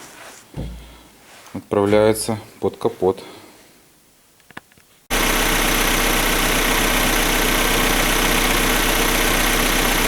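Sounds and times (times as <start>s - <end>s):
car engine idling: 5.1s - 10.0s.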